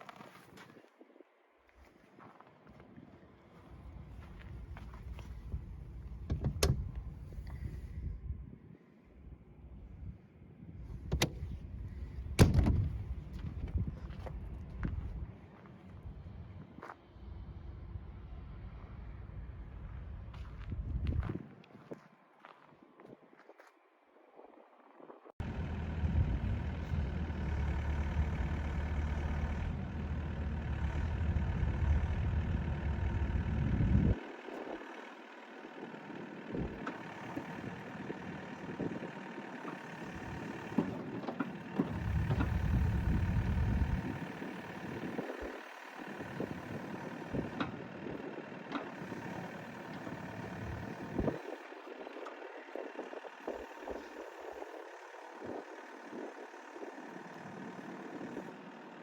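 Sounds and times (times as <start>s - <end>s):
excavator diesel engine rumbling: 3.2s - 8.6s, 25.4s - 59.0s.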